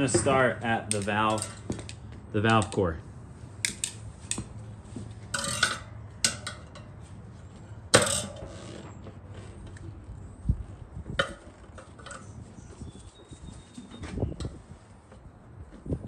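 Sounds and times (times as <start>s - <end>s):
metal tire spoons knocking on rim: 0.0s - 1.9s, 5.3s - 7.0s, 8.0s - 8.6s.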